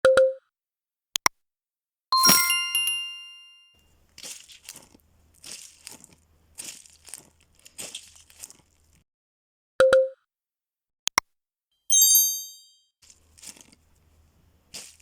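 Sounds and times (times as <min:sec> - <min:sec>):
crinkly crunching scrapes: 0:04.2 - 0:09.0, 0:13.1 - 0:15.0.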